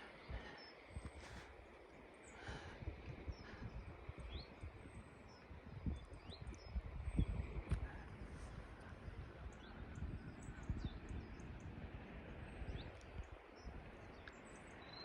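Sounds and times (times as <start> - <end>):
small birds calling: 0.0 - 11.6.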